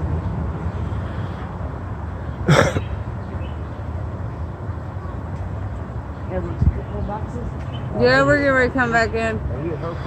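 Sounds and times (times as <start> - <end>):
street traffic rumble: 0.0 - 10.0
person coughing: 2.5 - 2.9.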